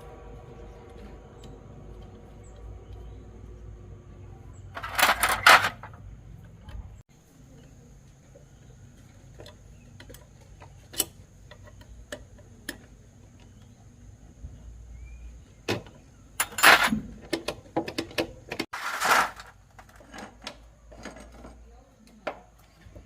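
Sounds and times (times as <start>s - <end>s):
loud clatter: 4.8s - 6.0s, 18.7s - 20.1s.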